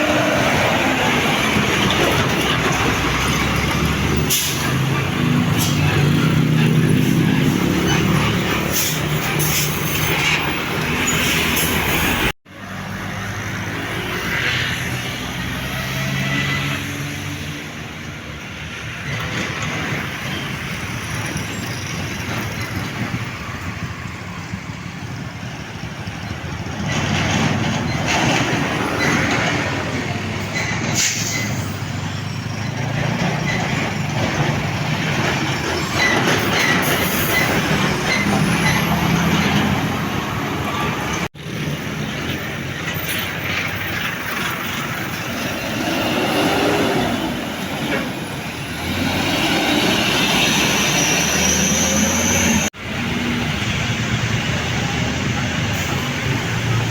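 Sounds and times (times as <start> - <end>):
road traffic noise: 0.0 - 56.9
truck diesel engine revving: 44.2 - 56.9.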